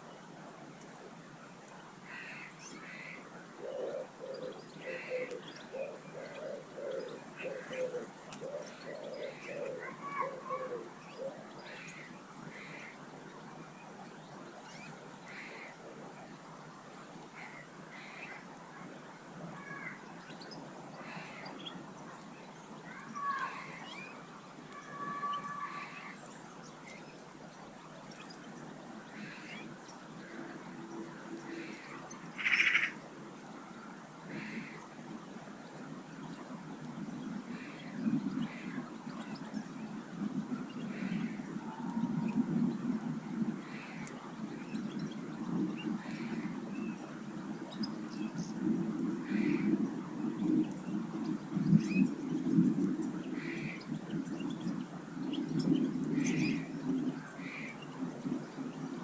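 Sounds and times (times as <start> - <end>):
background hiss: 0.0 - 59.0
small birds chirping: 1.7 - 33.0, 34.3 - 59.0
pigeon cooing: 3.6 - 11.4.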